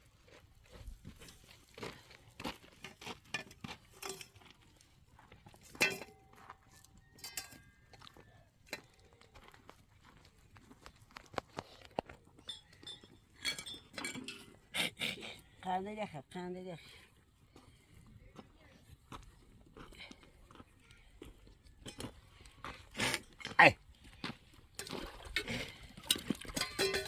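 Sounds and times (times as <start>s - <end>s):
light knocks and clinks: 3.3s - 4.4s, 5.6s - 8.0s, 12.4s - 14.6s, 26.0s - 27.0s.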